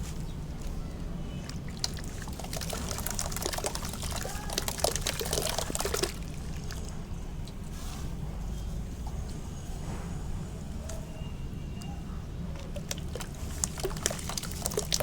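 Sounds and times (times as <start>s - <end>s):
cement crackling and bubbling in water: 0.0s - 7.8s, 12.5s - 15.0s
low steady hum: 0.0s - 15.0s.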